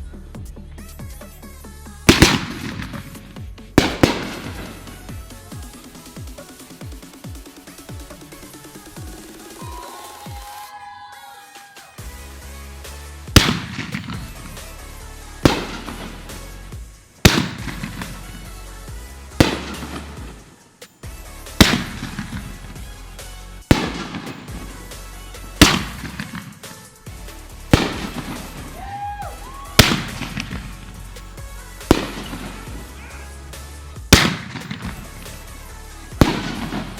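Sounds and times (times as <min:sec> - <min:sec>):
music with heavy bass: 0:00.0 - 0:10.6, 0:11.8 - 0:36.9
fireworks bangs: 0:02.1 - 0:10.8, 0:12.0 - 0:36.9.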